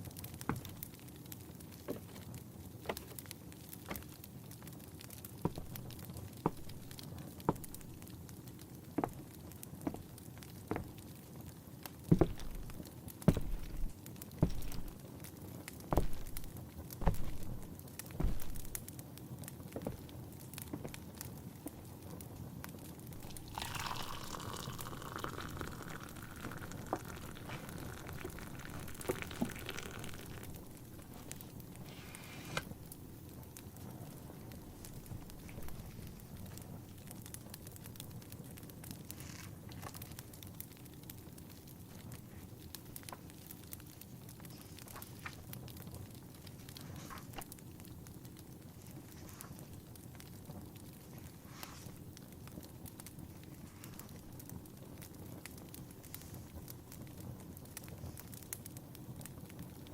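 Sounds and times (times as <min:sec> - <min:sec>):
wood fire crackling: 0:00.0 - 0:59.9
tea pouring into a cup: 0:05.7 - 0:07.9, 0:12.2 - 0:12.8, 0:13.4 - 0:14.9, 0:23.2 - 0:32.0.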